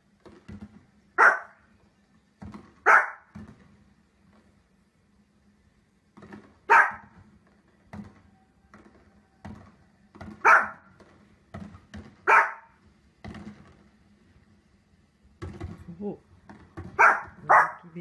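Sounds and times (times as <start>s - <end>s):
small dog barking: 1.2s - 1.6s, 2.8s - 3.3s, 6.7s - 7.1s, 10.4s - 10.9s, 12.2s - 12.8s, 17.0s - 17.9s
fireworks booms on television: 5.8s - 17.7s.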